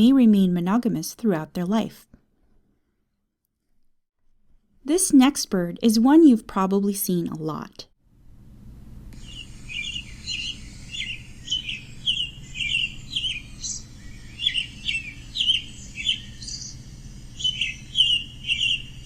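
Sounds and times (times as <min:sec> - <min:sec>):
robin singing: 0:09.2 - 0:19.0.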